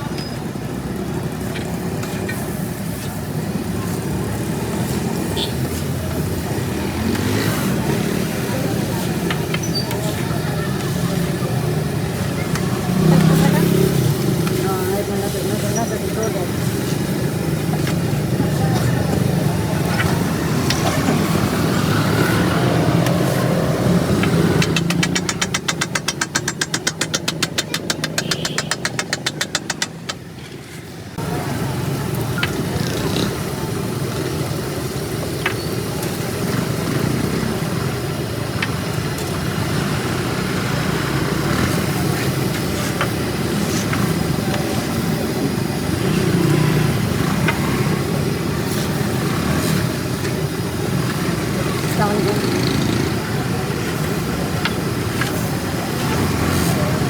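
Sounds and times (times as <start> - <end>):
traffic engines running: 0.0 - 57.0
fast even clicking: 23.0 - 30.3
sharp taps: 24.1 - 30.3.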